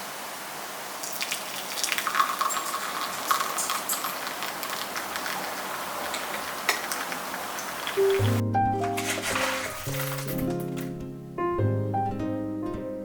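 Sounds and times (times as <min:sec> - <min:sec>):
coffee maker hissing: 0:01.0 - 0:08.4.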